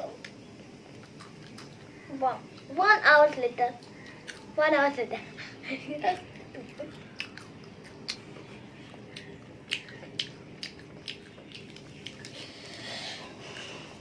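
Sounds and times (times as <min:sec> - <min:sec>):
crunchy chewing: 0:00.2 - 0:04.6, 0:06.0 - 0:14.0.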